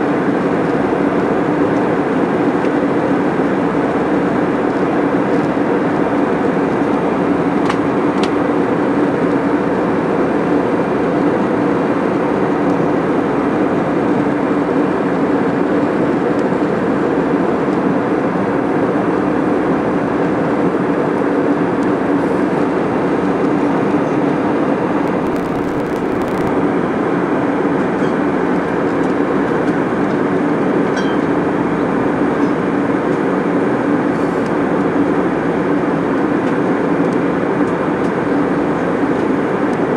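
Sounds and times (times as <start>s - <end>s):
jet airliner cabin drone: 0.0s - 39.9s
faint clicks: 25.1s - 26.6s.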